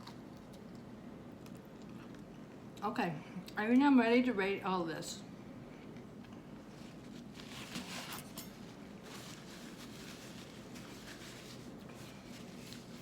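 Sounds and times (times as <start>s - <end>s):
low room hum: 0.0s - 13.0s
rustling and handling noises: 6.2s - 13.0s.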